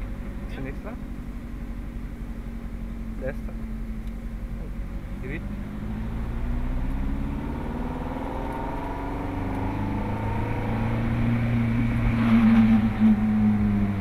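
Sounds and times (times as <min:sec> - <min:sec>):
car engine while driving: 0:00.0 - 0:14.0.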